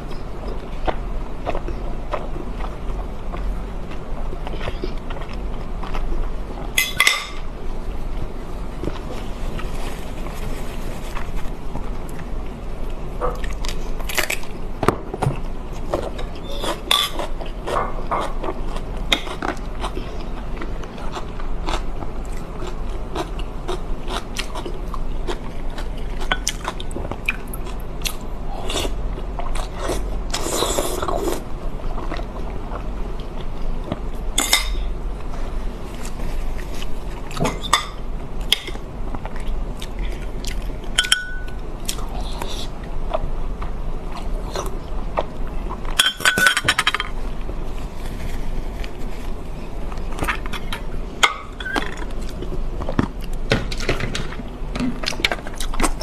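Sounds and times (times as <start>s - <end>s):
steady low hum: 0.0s - 56.0s
person chewing food: 0.1s - 7.2s, 8.8s - 34.3s, 35.0s - 46.0s, 55.0s - 56.0s.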